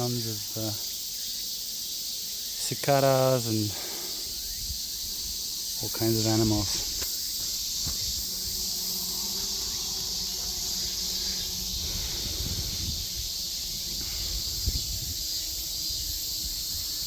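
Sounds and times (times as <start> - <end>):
cicadas buzzing: 0.0 - 17.0
wind rumble on microphone: 4.4 - 5.5, 7.6 - 17.0.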